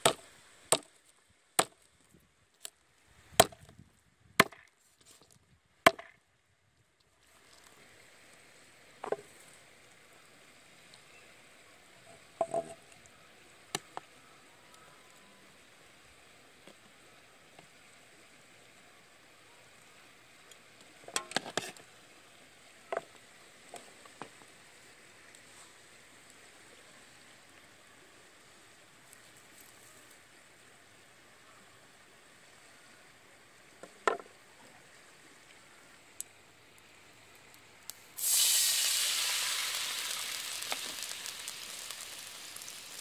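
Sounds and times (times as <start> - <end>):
faint background hiss: 0.0 - 43.0.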